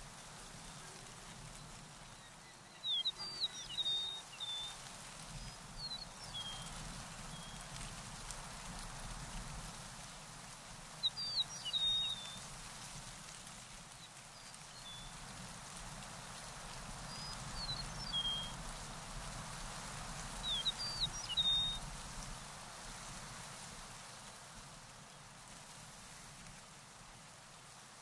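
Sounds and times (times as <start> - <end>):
steady background hiss: 0.0 - 28.0
songbird chirping and whistling: 2.1 - 4.8, 11.0 - 12.4, 17.1 - 18.5, 20.4 - 21.8.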